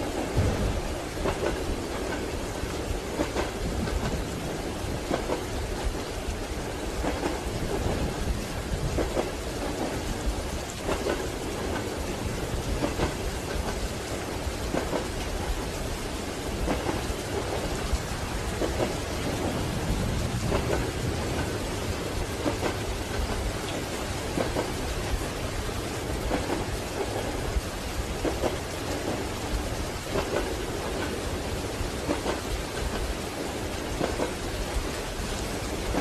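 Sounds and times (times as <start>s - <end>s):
steady rain: 0.0s - 36.0s
train wheels clacking over rail joints: 0.0s - 36.0s
low rumble: 0.4s - 1.4s.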